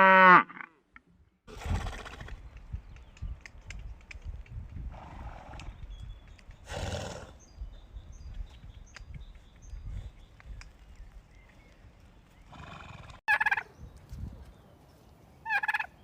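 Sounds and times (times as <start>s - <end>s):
light clicks: 2.5s - 4.8s
horse calling: 6.6s - 7.6s, 12.3s - 13.7s.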